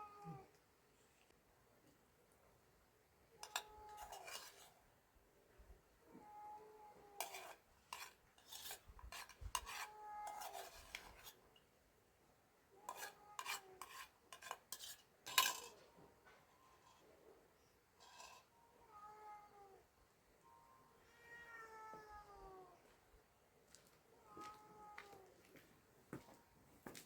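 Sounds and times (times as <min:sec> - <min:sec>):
cats meowing: 0:00.0 - 0:00.6, 0:06.0 - 0:07.4, 0:09.6 - 0:10.9, 0:18.1 - 0:19.8, 0:20.9 - 0:22.9, 0:24.1 - 0:25.4
dishes and utensils clinking: 0:03.4 - 0:04.7, 0:07.2 - 0:11.3, 0:12.9 - 0:17.0.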